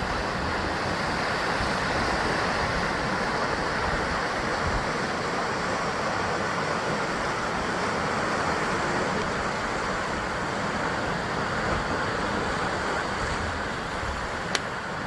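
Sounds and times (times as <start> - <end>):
waves washing against rocks: 0.0 - 15.0.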